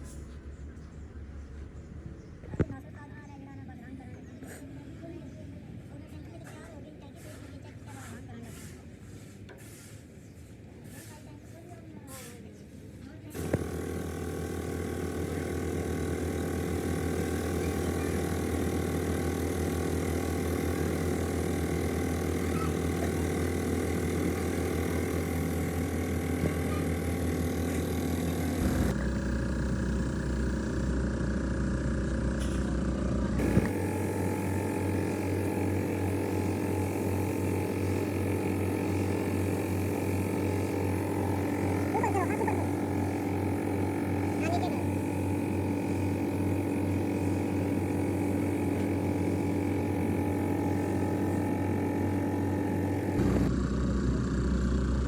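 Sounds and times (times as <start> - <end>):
machine humming: 13.4 - 53.8.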